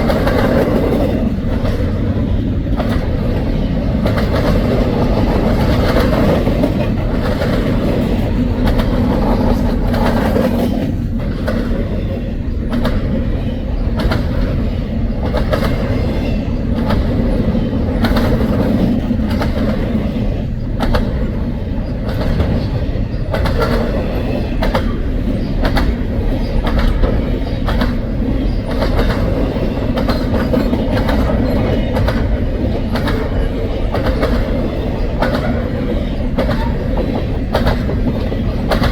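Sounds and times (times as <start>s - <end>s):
train wheels rumbling on rail: 0.0s - 38.9s
wheels clicking over rail joints: 0.0s - 38.9s.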